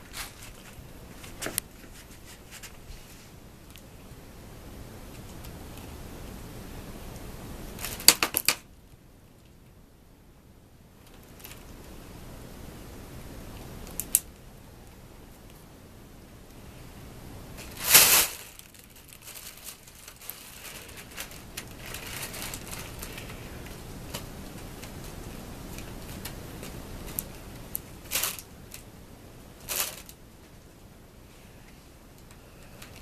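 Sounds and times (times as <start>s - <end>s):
crinkly rustling: 0.0s - 4.0s, 7.7s - 8.6s, 11.0s - 12.0s, 17.5s - 28.9s, 29.5s - 30.7s, 31.6s - 33.0s.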